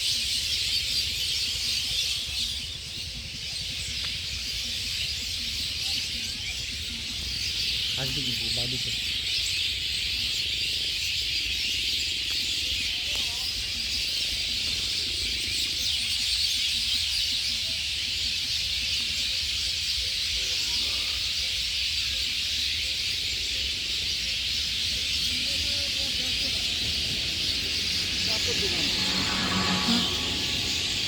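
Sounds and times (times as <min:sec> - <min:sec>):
small birds chirping: 0:00.0 - 0:31.0
low rumble: 0:25.4 - 0:31.0.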